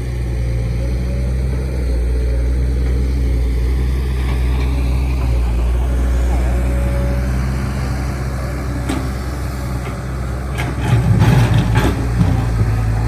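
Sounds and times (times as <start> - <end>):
excavator engine humming: 0.0 - 13.0
knocks and clatter: 8.8 - 13.0.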